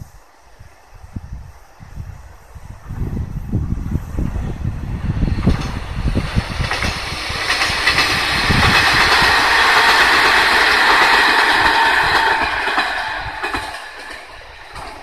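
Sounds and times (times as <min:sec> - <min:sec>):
train wheels clattering over rail joints: 0:05.1 - 0:15.0.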